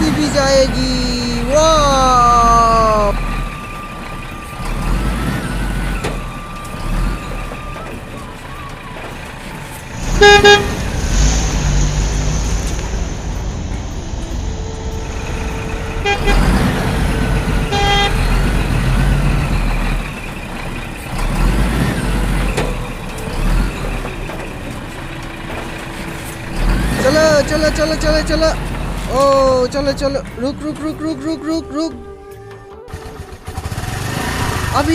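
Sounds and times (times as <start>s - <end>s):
low running rumble: 0.0s - 34.9s
toy vehicle horns honking: 10.0s - 10.9s, 15.9s - 19.1s
held tone: 10.0s - 19.0s.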